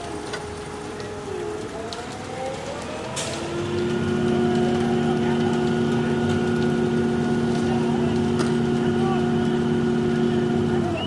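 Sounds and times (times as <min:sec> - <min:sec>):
engine running at high speed: 0:00.0 - 0:11.0.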